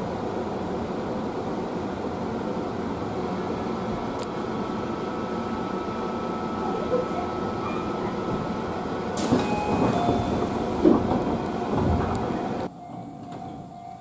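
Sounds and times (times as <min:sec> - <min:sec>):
stopped train humming: 0:00.0 - 0:14.0
train cabin noise: 0:00.0 - 0:14.0
train doors sliding open: 0:05.3 - 0:14.0.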